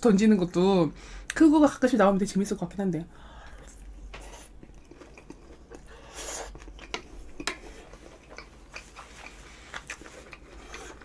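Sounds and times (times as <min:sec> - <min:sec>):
person chewing food: 0:03.2 - 0:11.0.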